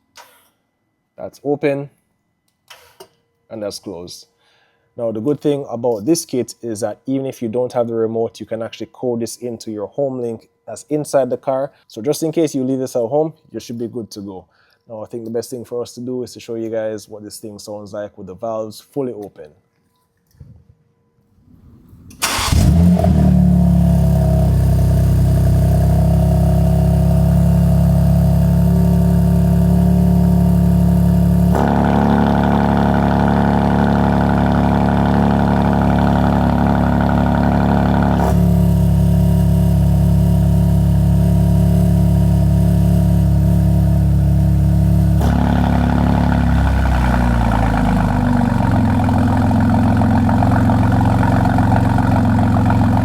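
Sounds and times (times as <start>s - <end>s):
car engine starting and idling: 21.6s - 53.0s.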